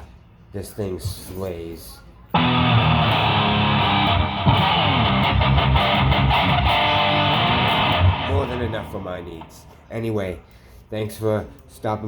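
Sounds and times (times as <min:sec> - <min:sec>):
loud strummed electric guitar: 0:02.4 - 0:09.6.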